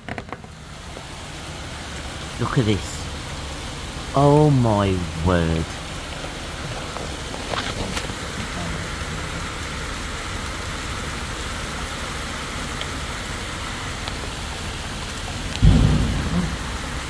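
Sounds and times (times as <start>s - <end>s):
hail and rain falling: 0.0s - 17.0s
loud low thump: 15.6s - 17.0s.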